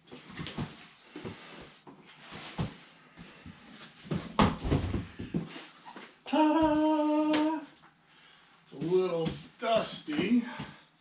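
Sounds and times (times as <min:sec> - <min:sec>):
person calling out: 0:06.3 - 0:07.7.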